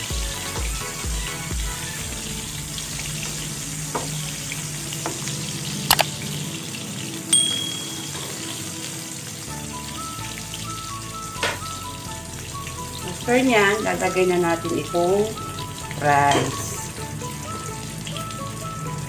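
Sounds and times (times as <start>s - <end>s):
soft background music: 0.0s - 19.0s
sharp clicks: 5.9s - 6.1s
short high ding: 7.3s - 8.5s.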